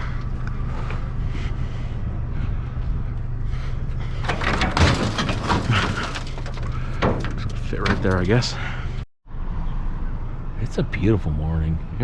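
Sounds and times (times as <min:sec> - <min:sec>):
steady low hum: 0:00.0 - 0:12.0
scrap being shifted in truck bed: 0:04.2 - 0:08.2
clattering knocks: 0:04.2 - 0:08.5.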